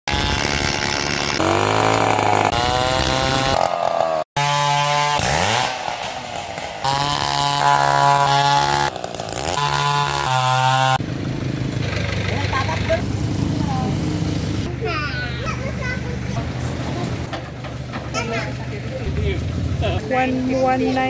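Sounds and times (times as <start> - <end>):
chainsaw cutting wood: 0.1 - 11.0.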